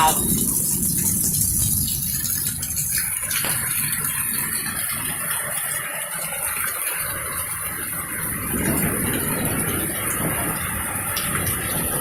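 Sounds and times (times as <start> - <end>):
heavy rain hissing: 0.0 - 1.9
wind gusts: 7.0 - 12.0.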